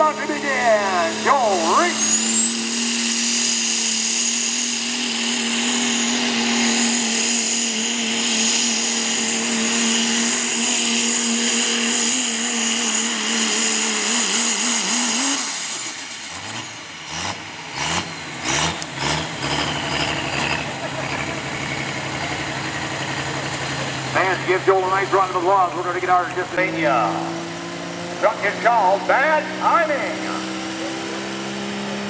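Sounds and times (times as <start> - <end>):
truck engine with turbo whine: 0.0 - 32.0.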